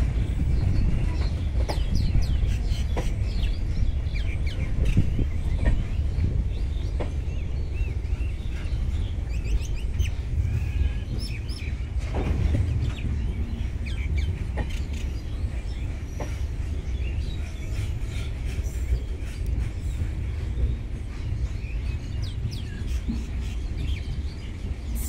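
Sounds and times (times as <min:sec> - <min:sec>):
birds chirping: 0:00.0 - 0:25.0
train coaches rumbling past: 0:00.0 - 0:25.0.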